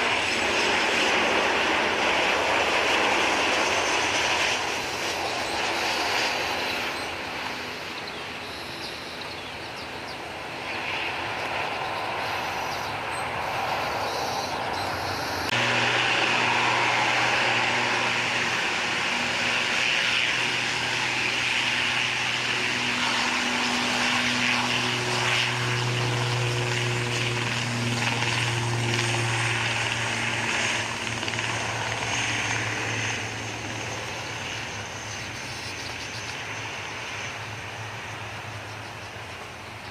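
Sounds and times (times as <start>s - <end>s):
jet engines hissing: 0.0s - 28.0s
turboprop engines droning: 0.0s - 39.9s.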